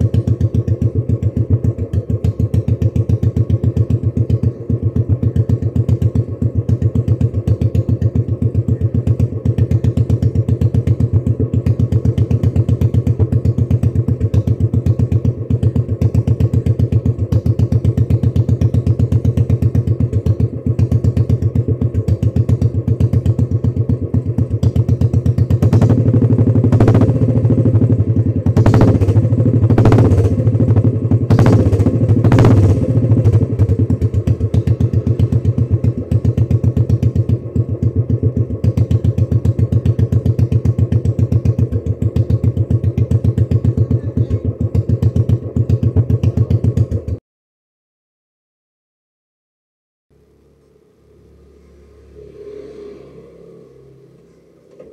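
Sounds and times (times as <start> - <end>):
engine throttle blips: 0.0 - 47.2, 50.1 - 54.9
motorcycle engine idling: 0.0 - 47.2.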